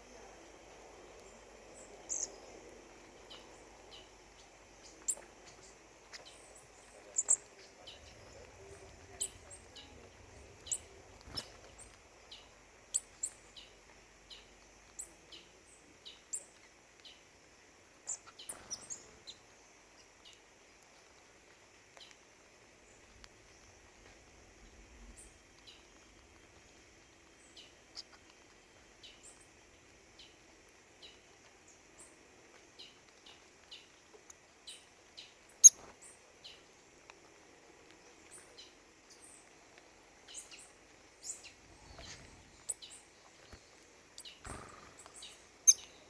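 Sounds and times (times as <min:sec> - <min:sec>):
faint background hiss: 0:00.0 - 0:46.0
birds chip calls: 0:01.2 - 0:15.5, 0:40.2 - 0:46.0.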